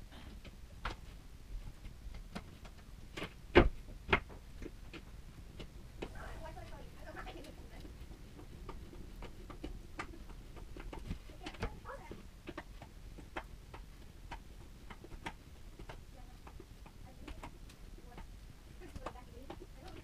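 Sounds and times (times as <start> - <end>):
light clicks and taps: 4.1 - 20.0.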